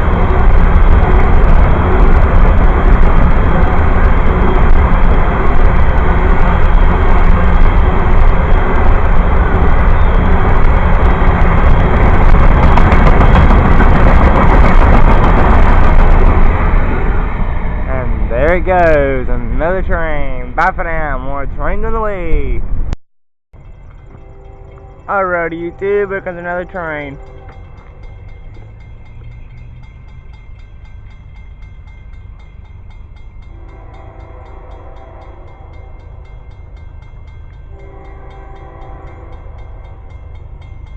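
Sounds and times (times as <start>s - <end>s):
train wheels clicking: 0.0s - 16.6s, 23.6s - 33.6s
train rumbling on rails: 0.0s - 23.0s, 23.6s - 40.9s.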